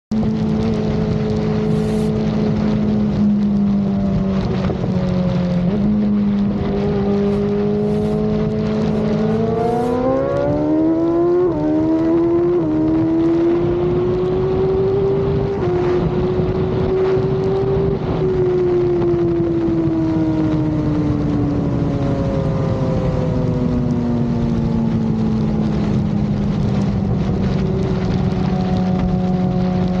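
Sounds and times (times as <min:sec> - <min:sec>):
rushing noise: 0:00.7 - 0:13.2
sport bike engine revving: 0:05.6 - 0:17.9.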